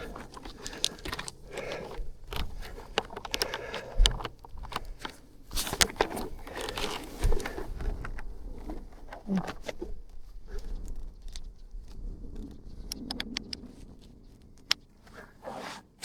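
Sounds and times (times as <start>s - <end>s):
objects being handled: 0.0s - 12.0s.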